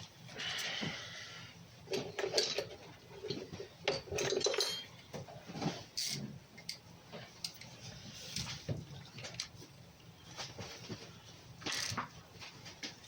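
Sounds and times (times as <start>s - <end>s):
metal tools clinking: 3.9s - 5.0s.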